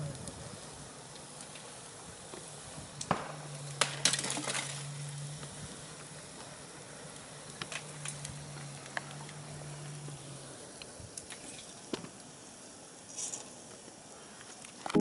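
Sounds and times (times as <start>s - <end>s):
steady low hum: 0.0s - 13.1s
burning car crackling: 0.0s - 15.0s.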